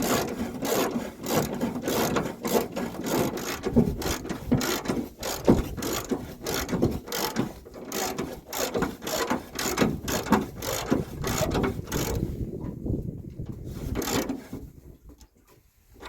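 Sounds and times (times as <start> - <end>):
rhythmic mechanical clatter: 0.0 - 12.3.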